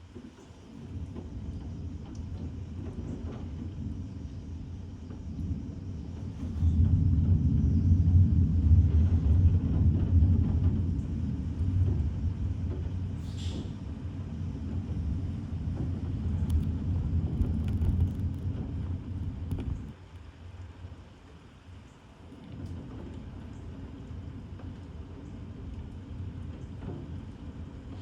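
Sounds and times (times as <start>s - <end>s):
thunder rumbling: 0.7s - 20.0s.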